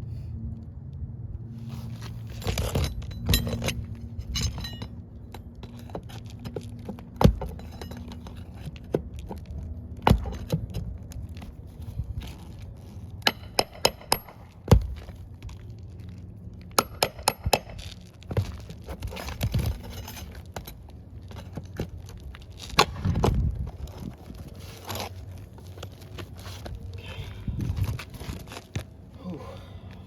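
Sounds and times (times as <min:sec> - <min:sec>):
shingles scraping: 0:17.6 - 0:26.8.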